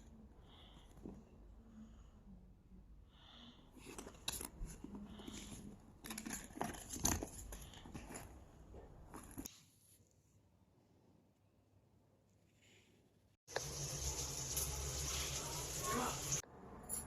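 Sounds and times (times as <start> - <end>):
handling clicks and crinkles: 3.8 - 9.5.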